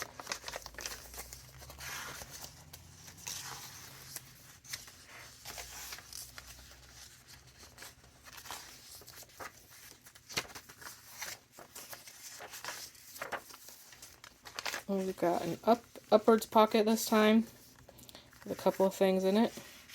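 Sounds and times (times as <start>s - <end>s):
paper rustling and crinkling: 0.0s - 19.9s.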